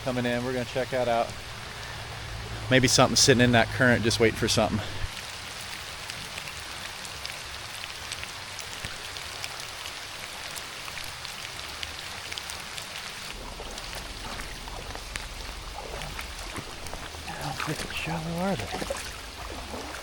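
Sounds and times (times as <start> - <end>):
steady rain falling: 0.0 - 20.0
sharp raindrop hits: 13.0 - 20.0.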